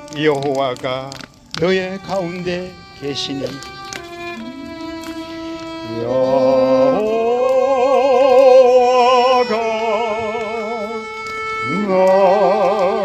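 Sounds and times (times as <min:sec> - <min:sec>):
violin playing slow melody: 0:00.0 - 0:13.0
voices singing: 0:05.7 - 0:13.0.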